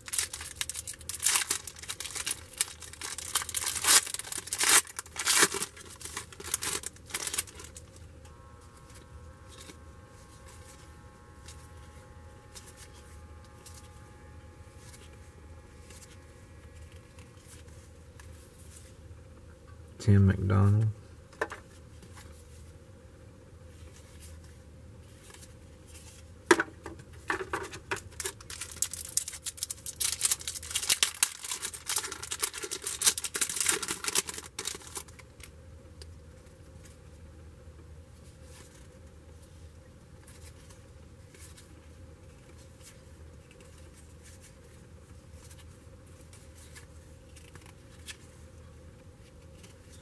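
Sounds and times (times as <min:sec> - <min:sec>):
card pack wrapper tearing and crinkling: 0:00.0 - 0:08.1, 0:08.8 - 0:18.4, 0:27.7 - 0:35.5.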